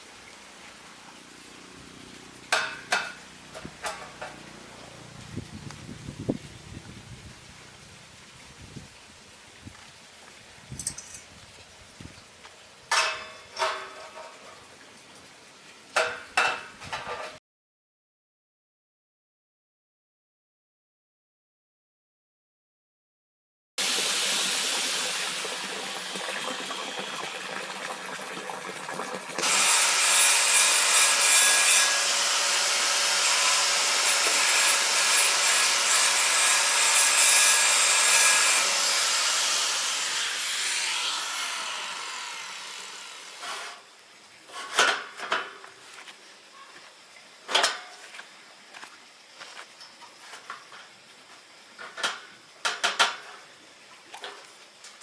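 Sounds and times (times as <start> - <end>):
sharp metal knocks: 2.5 - 4.4
angle grinder cutting metal: 23.8 - 26.0, 29.4 - 43.8.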